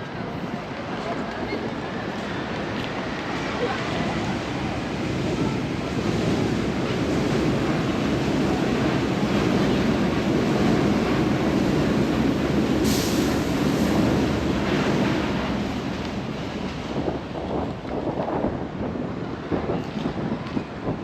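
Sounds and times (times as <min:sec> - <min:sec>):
traffic rumble: 0:00.0 - 0:21.0
wind on microphone: 0:02.9 - 0:21.0
high hiss: 0:12.7 - 0:14.1.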